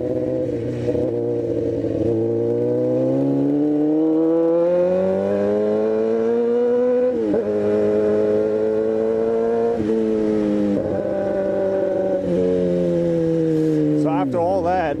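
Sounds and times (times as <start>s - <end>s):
motorcycle engine: 0.0s - 15.0s.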